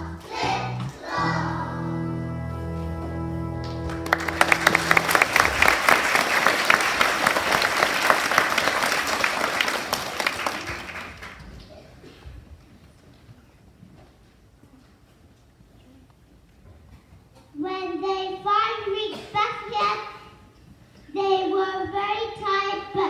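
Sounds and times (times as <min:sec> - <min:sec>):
held musical chord: 0:00.6 - 0:05.6
audience applause: 0:03.6 - 0:11.7.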